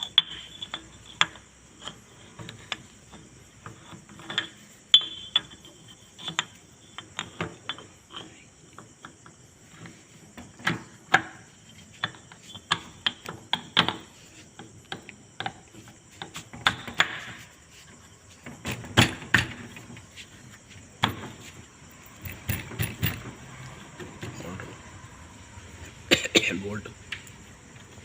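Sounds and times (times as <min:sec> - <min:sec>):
metal tools clinking and knocking: 0:03.7 - 0:08.4, 0:22.0 - 0:23.4.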